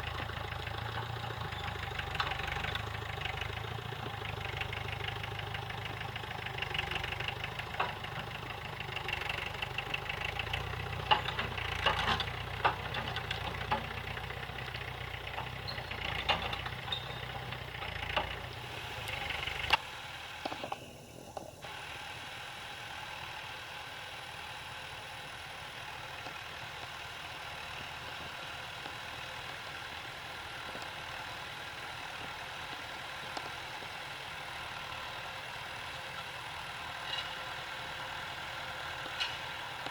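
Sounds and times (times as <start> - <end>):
tractor engine rumbling: 0.0 - 39.9
sharp clanks and knocks: 10.9 - 14.1, 15.4 - 18.5, 39.0 - 39.9.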